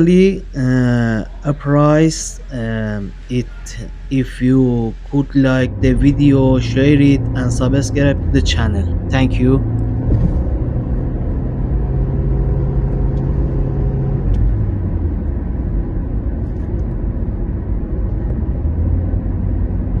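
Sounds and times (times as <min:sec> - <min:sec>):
faint hum: 0:00.0 - 0:10.3
car engine rumble: 0:00.0 - 0:20.0.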